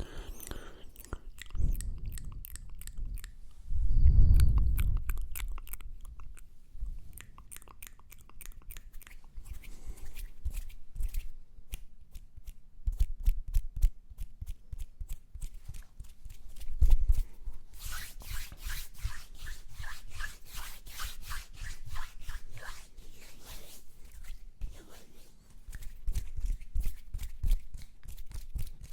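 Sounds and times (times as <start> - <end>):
mouth clicks: 4.2 - 6.4
hands rubbing: 15.4 - 28.9.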